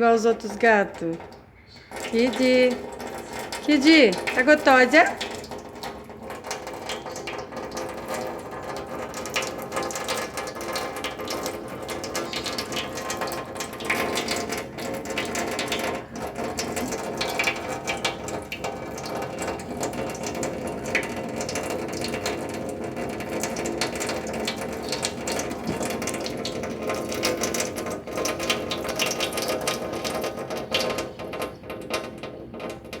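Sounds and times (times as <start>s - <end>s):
cat lapping water: 0.4s - 33.0s.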